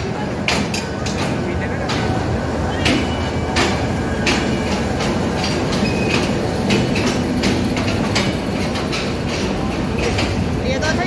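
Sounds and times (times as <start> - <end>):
train coaches rumbling past: 0.0 - 11.0
wheels and couplings clanking: 0.0 - 11.0
high wheel squeals: 2.6 - 5.0, 5.7 - 6.5.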